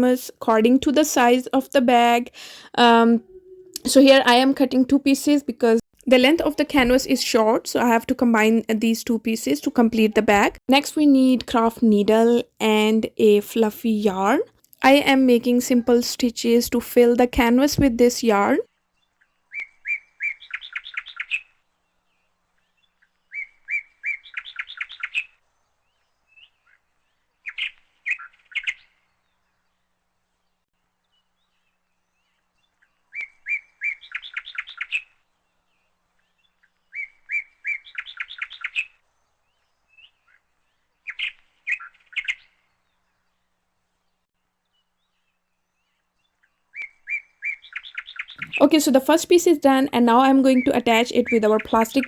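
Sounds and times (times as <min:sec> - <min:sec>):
bird singing rapid chirps: 0:46.8 - 0:52.0.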